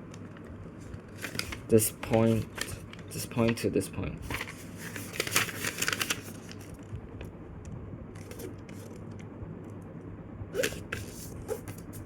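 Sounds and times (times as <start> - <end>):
paper rustling and crinkling: 0.8 - 6.8.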